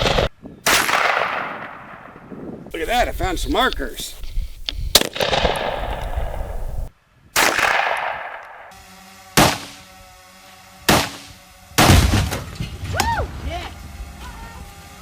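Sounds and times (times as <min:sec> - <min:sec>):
gunshots with sharp crack: 0:00.0 - 0:02.1, 0:04.9 - 0:06.6, 0:07.4 - 0:08.7, 0:09.4 - 0:09.7, 0:10.9 - 0:11.2, 0:11.8 - 0:12.4.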